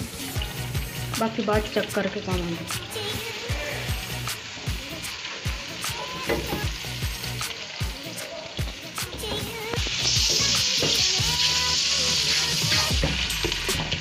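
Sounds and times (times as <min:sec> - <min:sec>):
masala sizzling in oil: 0:00.0 - 0:14.0.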